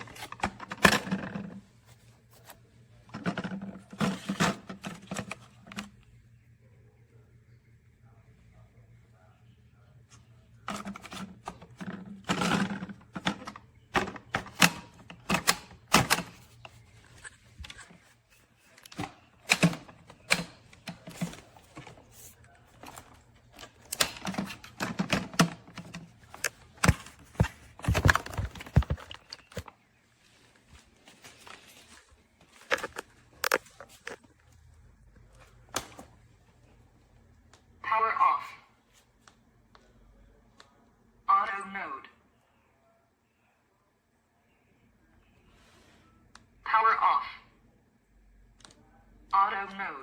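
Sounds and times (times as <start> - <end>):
plastic parts clicking and knocking: 0.0 - 1.6, 10.7 - 18.0, 18.7 - 29.7, 32.5 - 34.3.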